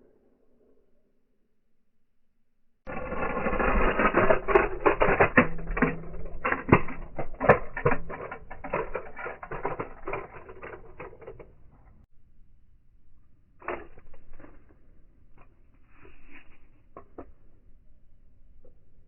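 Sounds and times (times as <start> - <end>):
toy cars clattering: 2.9 - 12.1.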